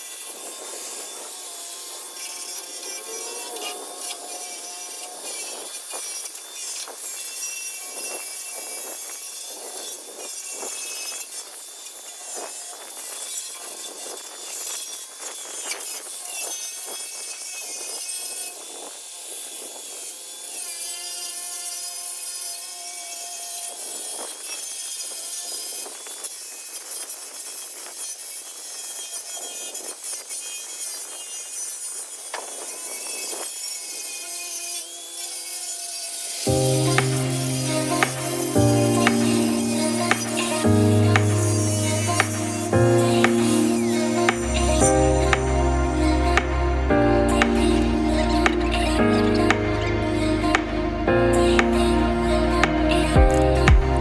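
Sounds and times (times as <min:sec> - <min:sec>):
buffer motor whine: 0:00.0 - 0:06.2
polishing pad friction on metal: 0:00.0 - 0:15.9, 0:33.9 - 0:54.0.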